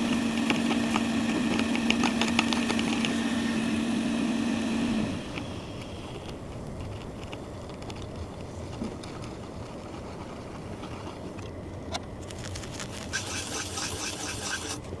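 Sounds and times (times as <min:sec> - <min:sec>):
small clicks and crackles: 0:00.0 - 0:03.4, 0:05.3 - 0:15.0
hot-air station blowing: 0:00.0 - 0:07.6, 0:12.1 - 0:15.0.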